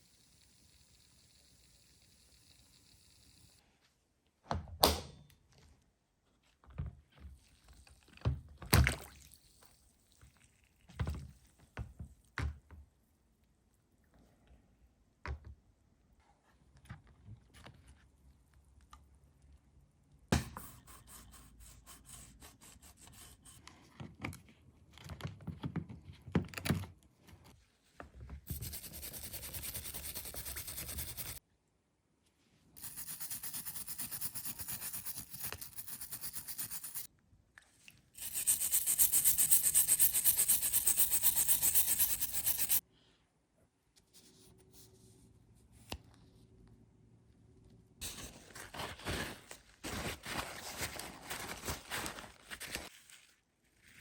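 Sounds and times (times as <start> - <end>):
scrubbing metal parts: 28.5 - 31.4, 32.8 - 37.1, 38.2 - 42.8.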